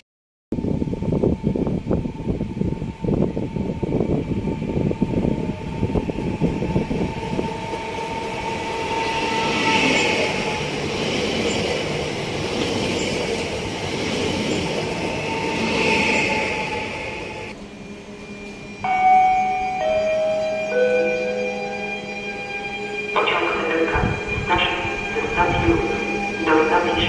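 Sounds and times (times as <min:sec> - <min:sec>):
wind rumble on microphone: 0:00.5 - 0:08.9
train rail rumble: 0:00.6 - 0:27.0
thin high whine: 0:14.6 - 0:27.0.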